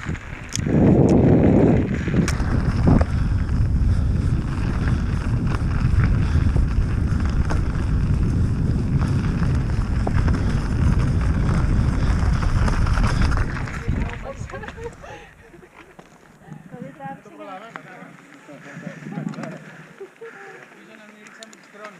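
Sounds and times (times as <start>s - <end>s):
wind buffeting microphone: 0.0s - 15.7s, 16.4s - 20.0s
bike and trail noise: 0.0s - 21.9s
sharp clicks: 21.0s - 21.9s.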